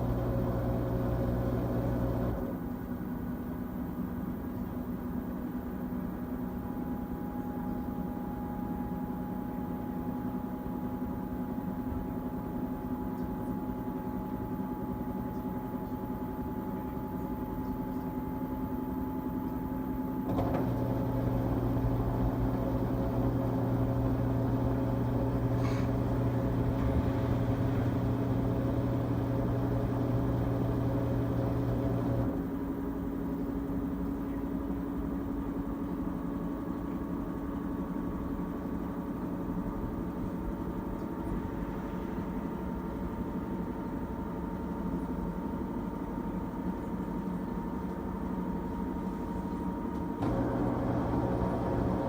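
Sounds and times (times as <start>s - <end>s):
washing machine humming: 0.0s - 52.0s.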